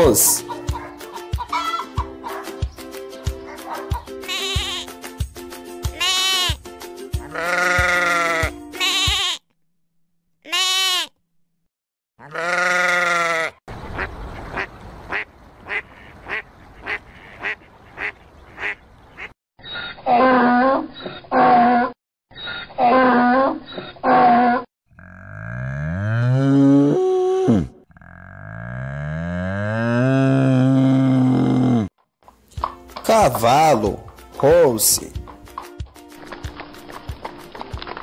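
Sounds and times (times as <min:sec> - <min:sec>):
donkey braying: 0:00.0 - 0:02.6, 0:03.5 - 0:05.0, 0:05.8 - 0:09.4, 0:12.2 - 0:13.6
background music: 0:00.0 - 0:09.1, 0:32.4 - 0:38.0
lambs bleating: 0:04.2 - 0:04.9, 0:05.9 - 0:06.6, 0:07.2 - 0:09.4, 0:10.5 - 0:11.1, 0:12.2 - 0:13.6.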